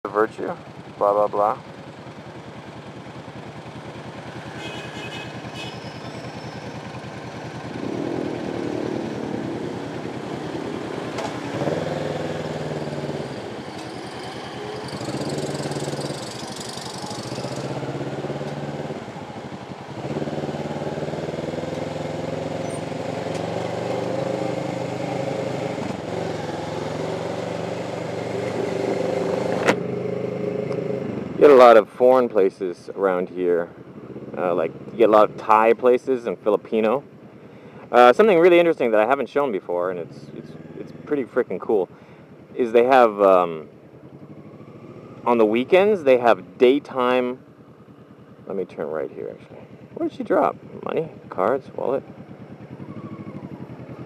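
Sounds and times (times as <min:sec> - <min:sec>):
motorcycle engine revving: 0:00.1 - 0:32.1, 0:33.0 - 0:36.0, 0:39.9 - 0:54.0.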